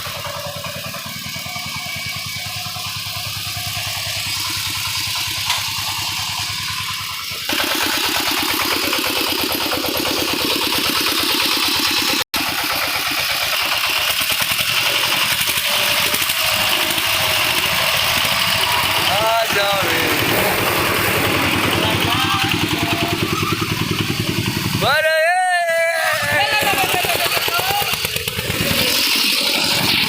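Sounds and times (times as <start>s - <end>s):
engine running with rapid pulse: 0.0s - 30.0s.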